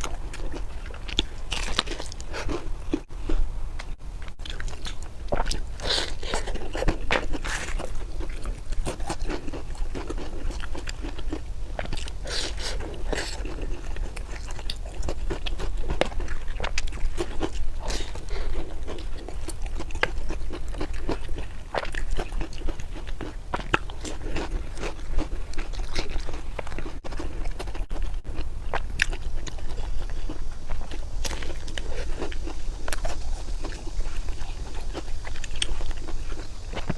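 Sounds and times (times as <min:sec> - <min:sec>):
person chewing crunchy food: 0:00.0 - 0:36.9
steady low hum: 0:00.0 - 0:36.9.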